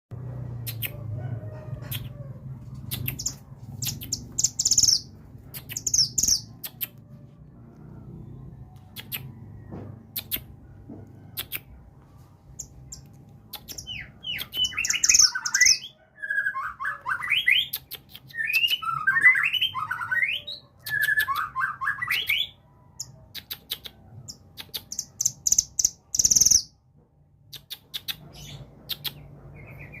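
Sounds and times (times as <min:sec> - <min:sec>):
songbird singing rising chirps: 0:02.8 - 0:07.0, 0:12.5 - 0:22.6.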